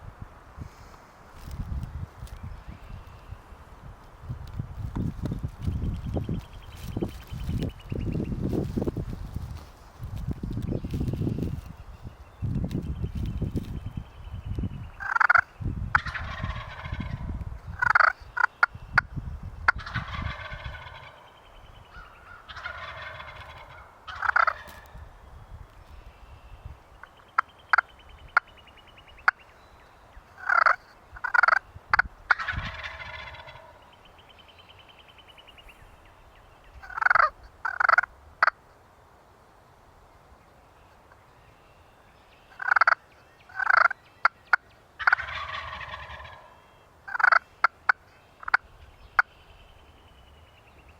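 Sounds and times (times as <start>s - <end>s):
sharp short turkey calls: 15.0s - 19.1s, 19.7s - 25.0s, 30.4s - 33.8s, 36.8s - 38.6s, 42.5s - 49.6s
turkeys gobbling: 15.0s - 19.1s, 19.7s - 25.0s, 27.0s - 28.5s, 30.4s - 33.8s, 36.8s - 38.6s, 42.5s - 49.3s.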